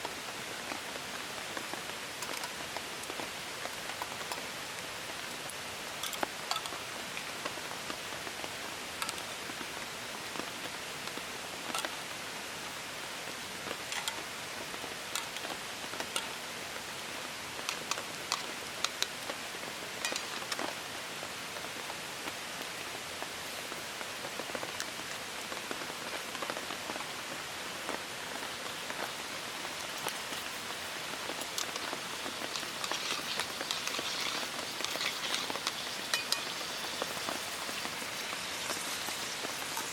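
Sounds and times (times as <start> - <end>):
steady rain: 0.0 - 39.9
sharp raindrops striking close: 13.2 - 20.8, 25.6 - 39.9.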